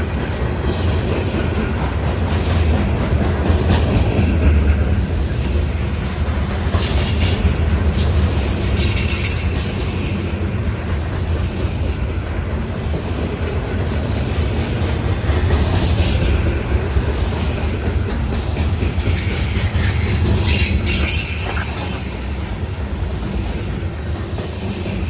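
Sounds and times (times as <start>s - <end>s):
freight train wheels rumbling: 0.0s - 25.0s.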